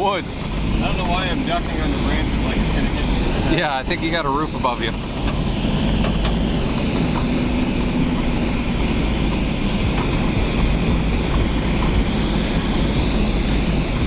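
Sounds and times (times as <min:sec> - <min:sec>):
engine drone: 0:00.0 - 0:14.0
low road rumble: 0:00.0 - 0:14.0
vehicle body rattles: 0:00.0 - 0:14.0.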